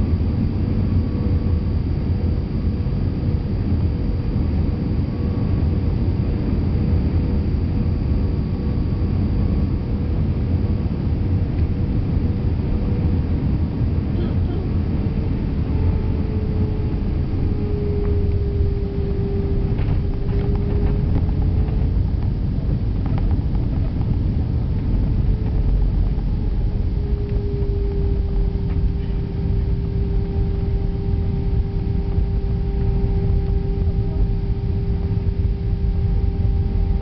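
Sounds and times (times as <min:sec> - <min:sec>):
aircraft cabin rumble: 0:00.0 - 0:37.0
engine whine: 0:00.0 - 0:37.0.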